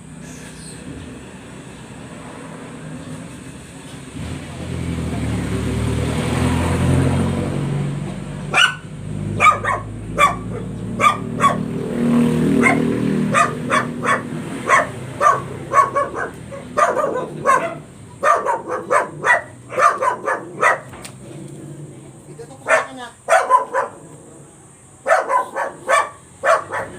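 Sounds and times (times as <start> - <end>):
vehicle engine rumbling: 0.0 - 26.9
dog barking: 8.5 - 11.8, 12.5 - 21.0, 22.6 - 24.2, 25.0 - 26.9.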